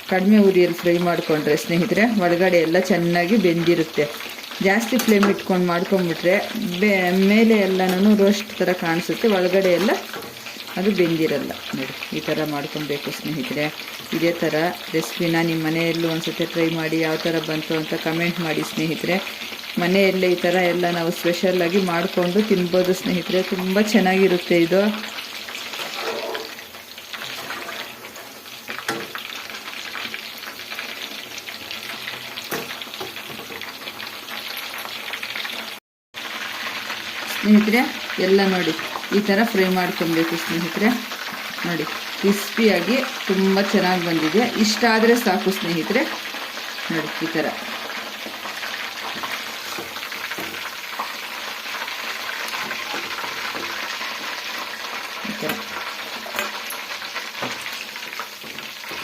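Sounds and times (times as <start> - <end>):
chicken deep-frying in hot oil: 0.0 - 59.0.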